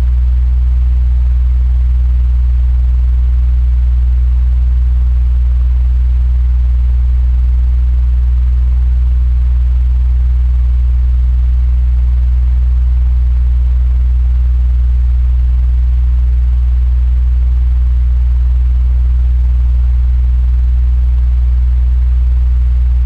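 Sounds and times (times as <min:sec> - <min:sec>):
electric fan running: 0:00.0 - 0:00.4, 0:21.5 - 0:23.0.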